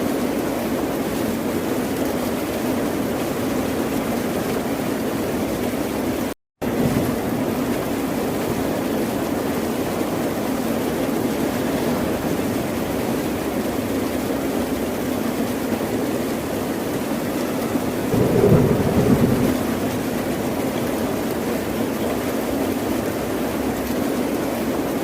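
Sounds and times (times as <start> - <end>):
ocean waves breaking: 18.0 - 22.0.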